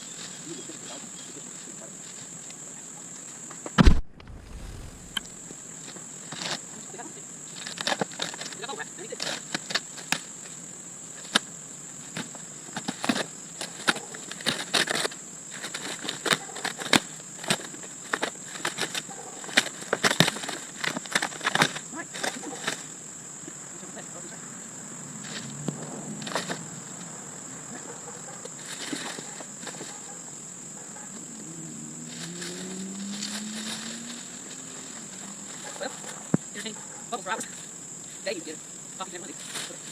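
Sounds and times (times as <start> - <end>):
insects chirring: 0.0 - 39.9
faint low hum: 3.8 - 5.5.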